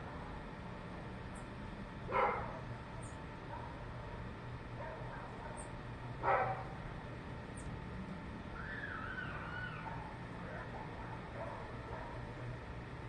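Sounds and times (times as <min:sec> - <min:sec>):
steady low hum: 0:00.0 - 0:13.0
dog barking: 0:02.1 - 0:02.7, 0:04.8 - 0:05.6, 0:06.2 - 0:06.7, 0:09.8 - 0:12.2.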